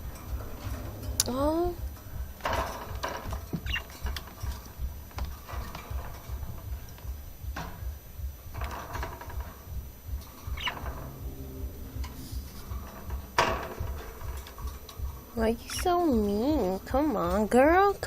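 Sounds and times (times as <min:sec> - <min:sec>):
steady low rumble: 0:00.0 - 0:18.0
bird squeaks: 0:03.5 - 0:04.0, 0:10.5 - 0:11.1
bird scuffling in wire cage: 0:08.5 - 0:09.6.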